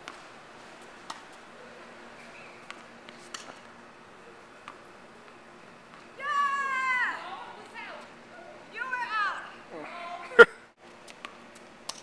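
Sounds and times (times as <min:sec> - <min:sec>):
low background noise: 0:00.0 - 0:12.0
tennis ball hits and bounces: 0:01.0 - 0:01.4.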